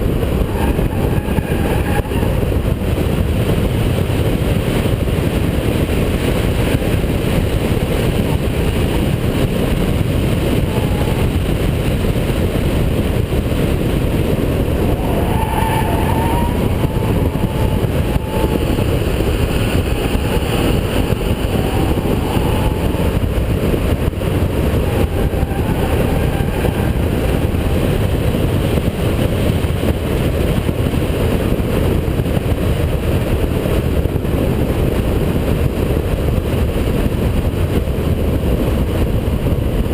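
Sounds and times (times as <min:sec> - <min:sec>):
car engine droning at speed: 0:00.0 - 0:39.9
road noise: 0:00.0 - 0:39.9.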